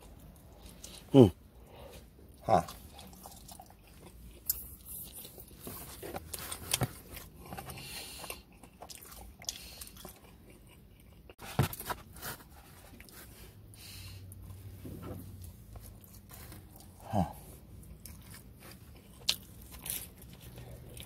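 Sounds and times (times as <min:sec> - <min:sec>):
chewing pizza close up: 0:02.3 - 0:13.6, 0:15.3 - 0:21.0.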